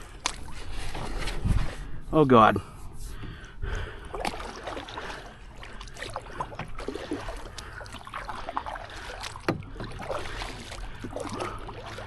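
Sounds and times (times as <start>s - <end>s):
paddle splashing water: 0.0s - 1.9s, 3.0s - 12.0s.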